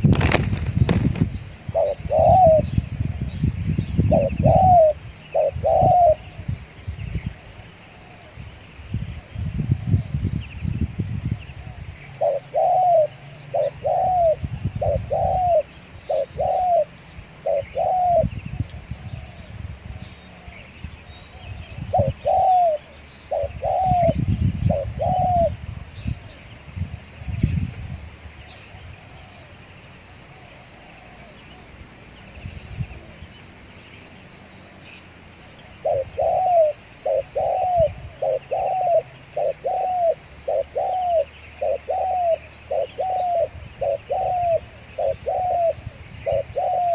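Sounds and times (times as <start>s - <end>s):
doves cooing: 0.0s - 2.9s, 4.1s - 6.4s, 11.6s - 18.4s, 21.3s - 25.6s, 28.6s - 31.7s, 35.4s - 46.9s.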